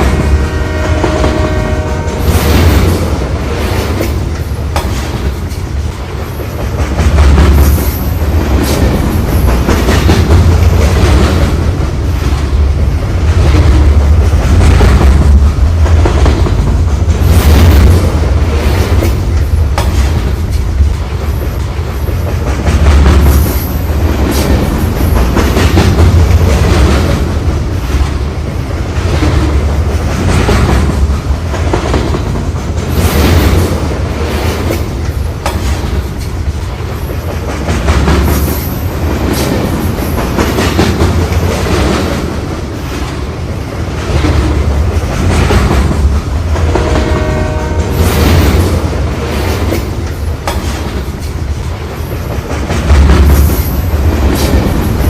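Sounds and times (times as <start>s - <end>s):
train horn: 0.0s - 2.6s, 46.6s - 48.3s
train rumbling on rails: 0.0s - 55.0s
wheels clacking over rail joints: 0.0s - 55.0s.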